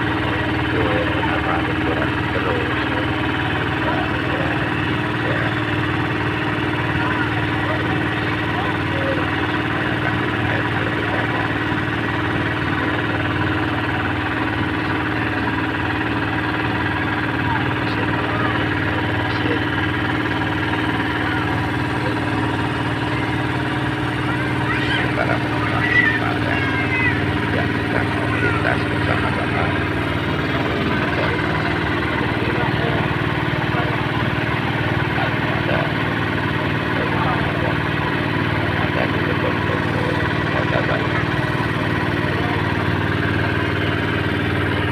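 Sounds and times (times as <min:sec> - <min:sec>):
ferry boat engine pulsing: 0:00.0 - 0:44.9.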